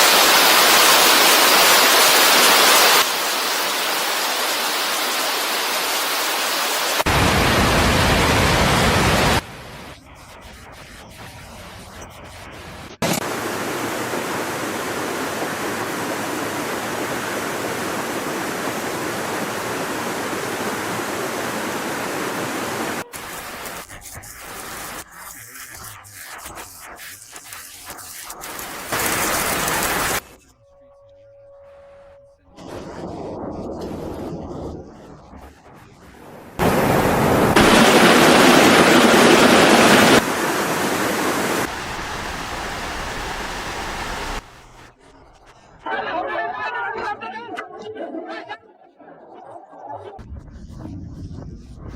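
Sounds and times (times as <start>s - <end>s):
floodwater rushing: 0.0s - 9.4s, 13.0s - 23.7s, 28.7s - 30.2s, 36.6s - 44.5s.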